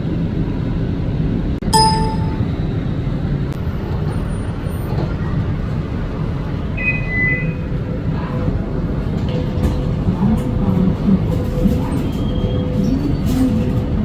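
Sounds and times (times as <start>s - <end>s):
train rumble: 0.0s - 14.0s
two-note electronic tone: 1.8s - 2.5s.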